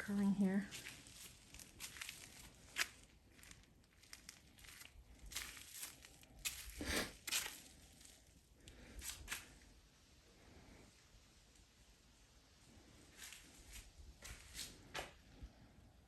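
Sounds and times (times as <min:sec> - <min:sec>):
handling noise rustling and crinkling: 0:00.3 - 0:09.7.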